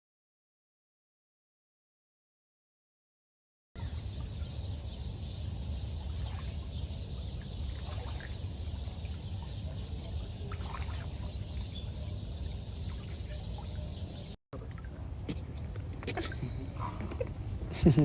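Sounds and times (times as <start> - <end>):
faint bird chirps: 3.8 - 14.4
rushing water: 7.4 - 12.0.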